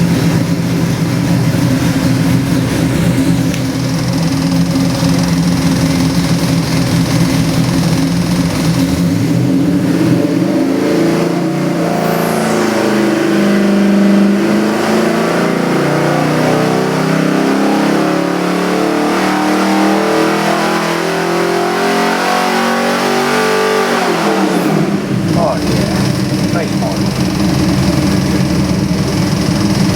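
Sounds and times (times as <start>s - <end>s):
engine running and revving: 0.0s - 29.9s.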